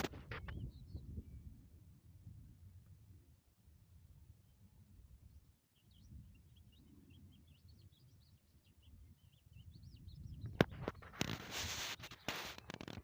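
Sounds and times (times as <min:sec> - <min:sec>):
small birds chirping: 0:00.0 - 0:01.8, 0:04.2 - 0:13.0.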